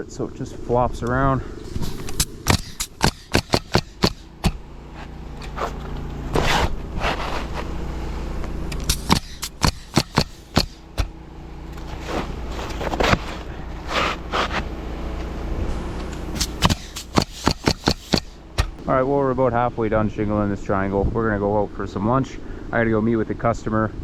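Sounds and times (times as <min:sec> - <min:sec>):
steady low hum: 0:00.0 - 0:22.7
scraping rustle: 0:01.6 - 0:04.3, 0:04.9 - 0:07.9, 0:11.8 - 0:14.7, 0:16.2 - 0:18.4
pneumatic nailer firing: 0:01.8 - 0:04.6, 0:08.7 - 0:11.2, 0:16.2 - 0:18.8.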